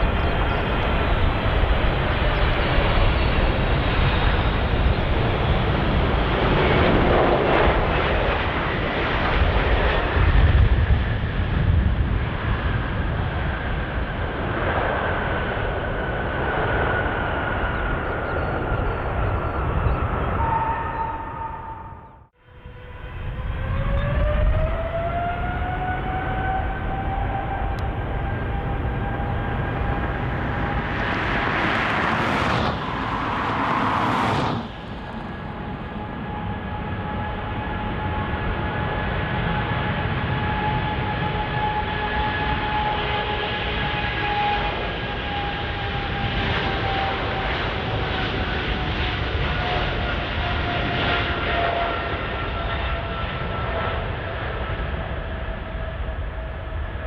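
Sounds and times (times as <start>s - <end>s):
jet engines roaring: 0.0s - 57.0s
loud rushes of noise: 19.7s - 38.5s.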